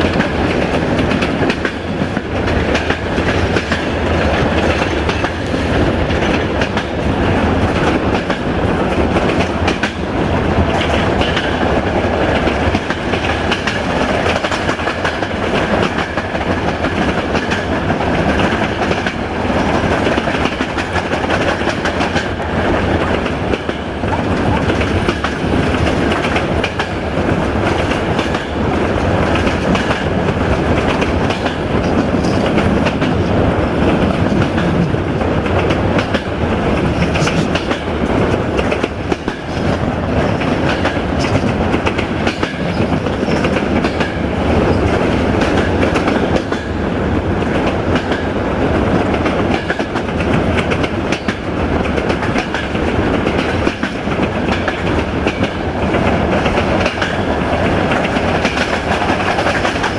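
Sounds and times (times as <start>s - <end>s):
train rumbling: 0.0s - 59.9s
wheels clacking over rail joints: 0.0s - 59.9s.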